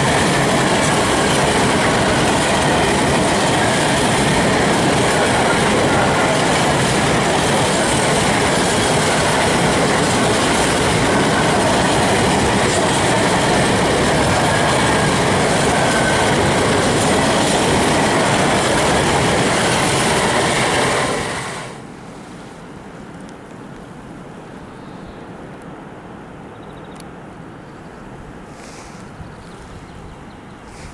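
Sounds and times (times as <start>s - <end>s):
train wheels on rails: 0.0s - 23.3s, 28.4s - 30.9s
quiet outdoor ambience: 21.8s - 30.9s.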